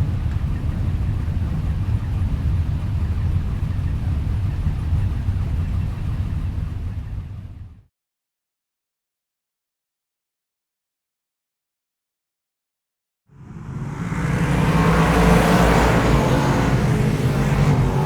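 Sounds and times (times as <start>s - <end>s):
vehicle engine rumbling: 0.0s - 7.9s, 13.3s - 18.0s.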